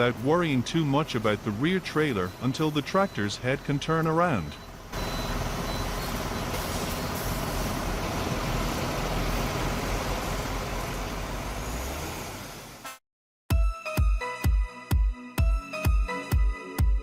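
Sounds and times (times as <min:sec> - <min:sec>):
diesel truck engine running: 0:00.0 - 0:12.9
road noise: 0:00.0 - 0:13.0.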